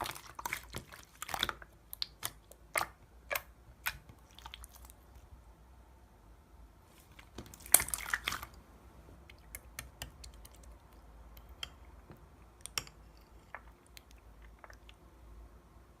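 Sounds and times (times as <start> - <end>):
slime clicking and popping: 0.3 - 4.6.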